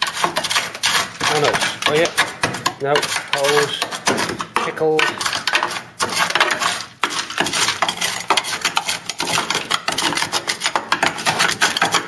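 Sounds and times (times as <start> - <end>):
hand tool scraping rusted steel: 0.0 - 12.0.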